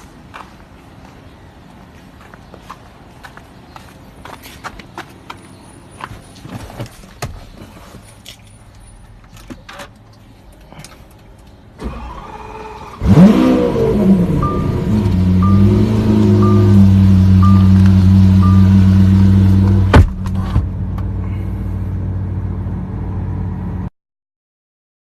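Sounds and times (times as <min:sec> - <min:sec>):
motorcycle engine starting and idling: 0:11.8 - 0:19.8
short high beeps: 0:14.4 - 0:19.1.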